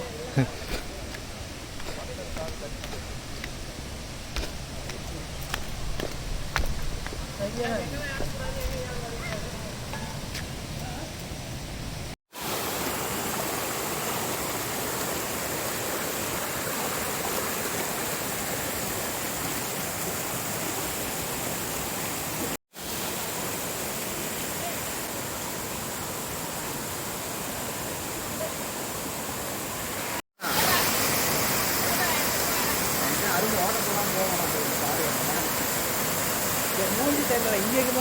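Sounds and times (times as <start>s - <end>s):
waterfall rushing: 12.3s - 38.0s.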